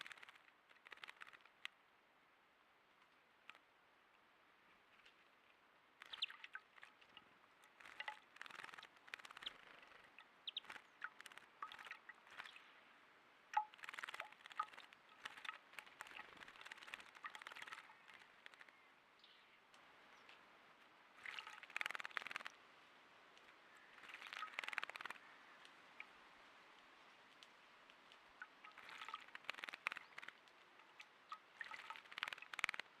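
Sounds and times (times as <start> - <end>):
bird splashing in water: 0.0 - 1.7, 6.0 - 18.9, 21.1 - 22.7, 23.4 - 26.1, 27.3 - 33.0.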